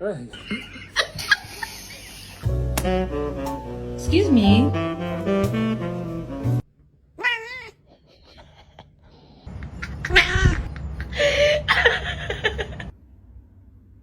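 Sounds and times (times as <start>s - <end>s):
cat meowing: 7.2s - 8.0s, 10.0s - 10.7s.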